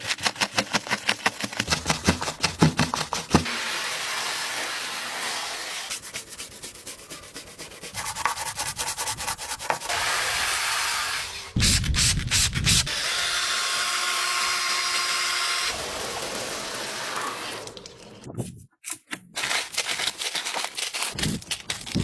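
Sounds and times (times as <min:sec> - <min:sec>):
rapid scrubbing: 0:00.1 - 0:11.9.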